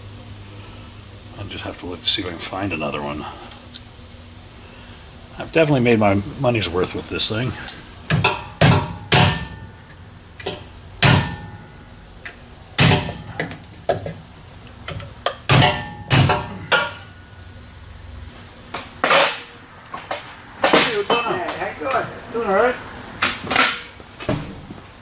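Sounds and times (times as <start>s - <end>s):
hammer blows on metal: 8.1s - 9.9s, 10.5s - 12.0s, 12.8s - 14.1s, 15.4s - 17.3s.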